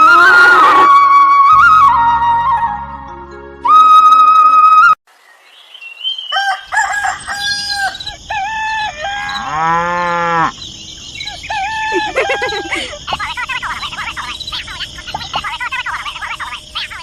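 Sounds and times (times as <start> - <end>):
loud whistle-like tone: 0.5 - 3.0, 3.6 - 5.0
chickens calling: 6.2 - 17.0
rooster crowing: 6.3 - 10.6, 11.3 - 12.8.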